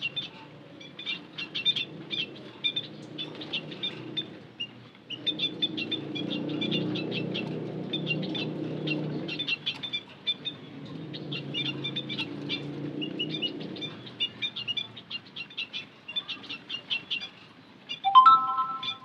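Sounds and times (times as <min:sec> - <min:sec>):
small birds twittering: 0:00.0 - 0:19.0.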